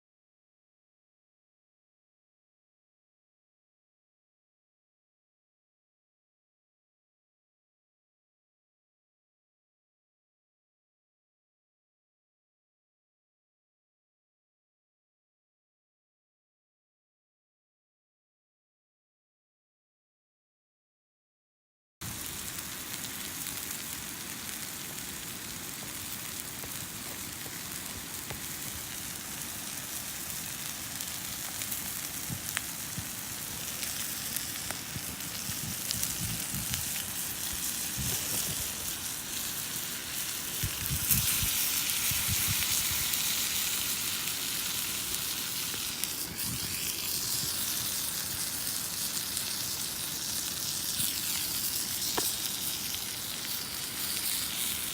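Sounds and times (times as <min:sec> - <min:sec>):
steak sizzling in a frying pan: 0:22.0 - 0:54.9.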